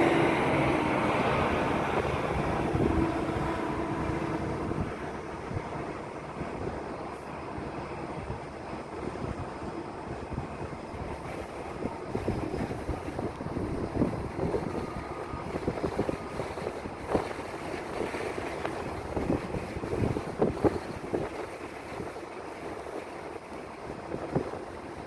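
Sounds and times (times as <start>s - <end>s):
wind gusting against microphone: 0.0s - 25.0s.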